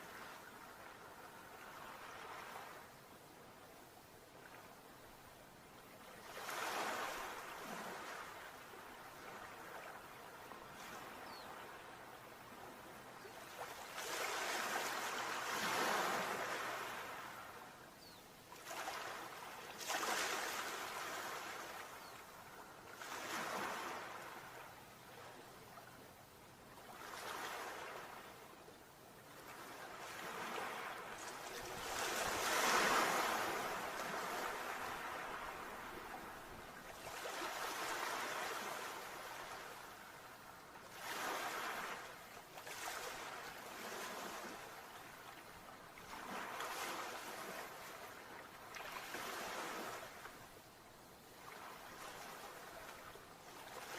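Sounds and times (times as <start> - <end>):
sea waves breaking: 29.8 - 40.2.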